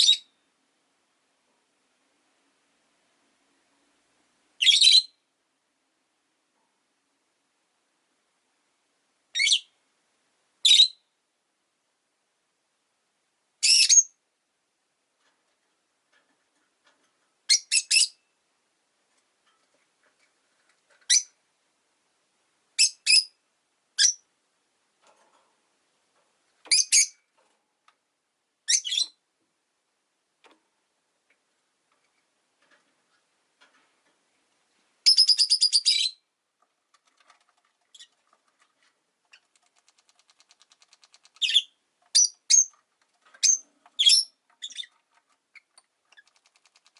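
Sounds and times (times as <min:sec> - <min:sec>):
lovebirds chirping: 0:00.0 - 0:00.4, 0:17.4 - 0:18.3, 0:21.0 - 0:21.4, 0:22.8 - 0:23.4, 0:24.0 - 0:24.3, 0:26.7 - 0:27.3, 0:28.6 - 0:29.2, 0:35.0 - 0:36.3, 0:37.8 - 0:38.4, 0:40.2 - 0:46.9
lovebird rapid chatter: 0:39.3 - 0:42.8, 0:43.4 - 0:46.9.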